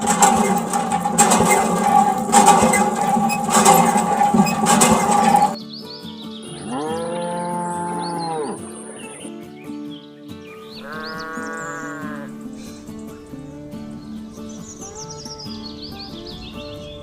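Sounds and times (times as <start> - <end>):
birds chirping: 5.4 - 17.0
cow mooing: 6.6 - 8.7, 10.8 - 12.4.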